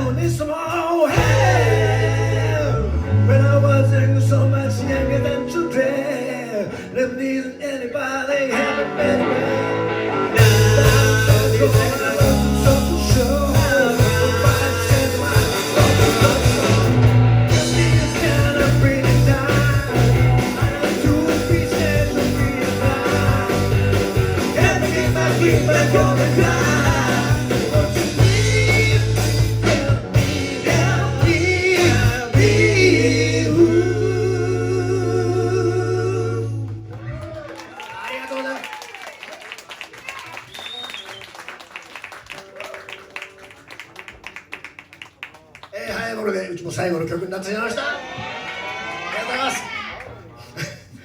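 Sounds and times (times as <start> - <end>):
man singing: 0.0 - 37.0
rock band playing: 1.1 - 6.3, 8.5 - 37.0.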